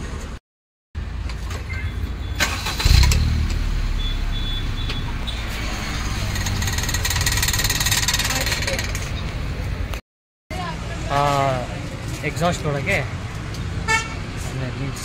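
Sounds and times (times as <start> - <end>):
car engine starting and idling: 1.1 - 9.9.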